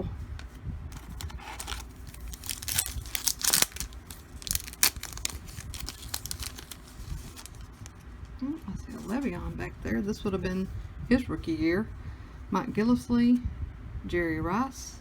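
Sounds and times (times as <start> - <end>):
foil wrapper crinkling and tearing: 0.9 - 7.9.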